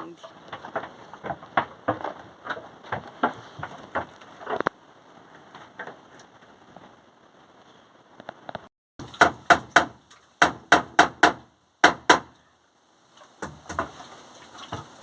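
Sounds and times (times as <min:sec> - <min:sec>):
sharp knocks: 0:09.0 - 0:12.3.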